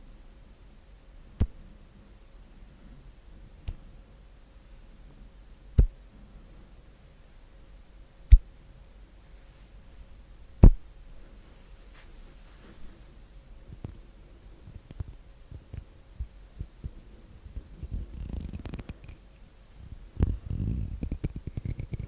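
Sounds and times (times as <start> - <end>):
sharp hand strikes: 5.8 - 6.0, 10.6 - 10.8.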